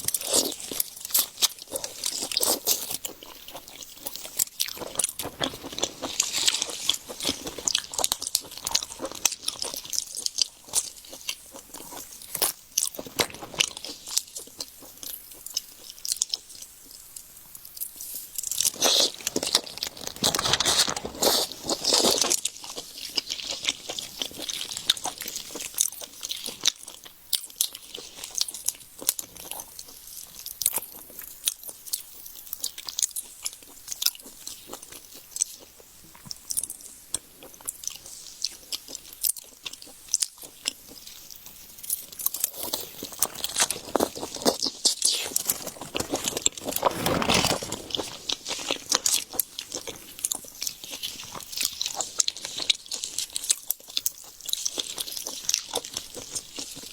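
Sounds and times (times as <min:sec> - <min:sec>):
crunchy chewing of shrimp: 0:00.0 - 0:56.9.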